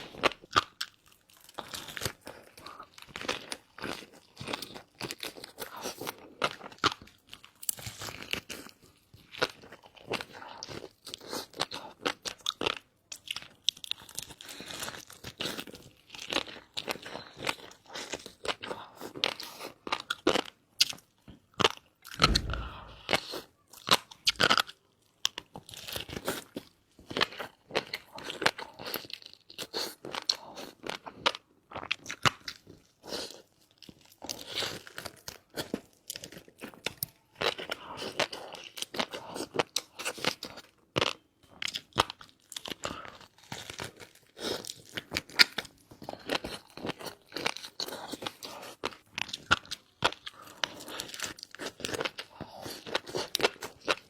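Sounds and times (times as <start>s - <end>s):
chewing crunchy food: 0.0s - 54.0s
low thump: 22.1s - 23.2s.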